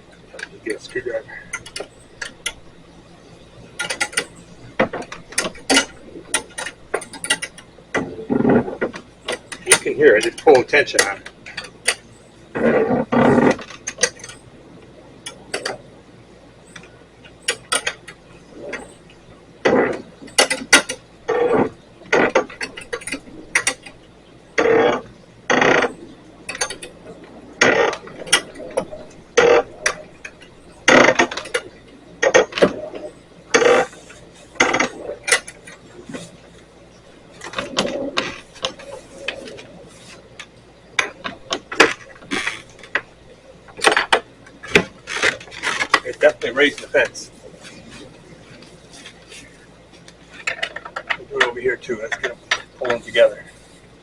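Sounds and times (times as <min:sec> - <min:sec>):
turnbuckle creaking and squeaking: 0:01.5 - 0:02.7, 0:03.8 - 0:07.7, 0:09.3 - 0:14.4, 0:26.5 - 0:27.0, 0:27.6 - 0:36.4, 0:40.4 - 0:43.1.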